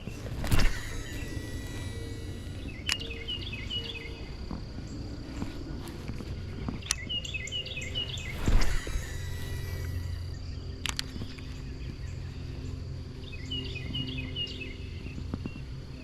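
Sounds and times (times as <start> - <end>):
low hoots: 0.0 - 5.8
songbird singing: 0.0 - 16.0.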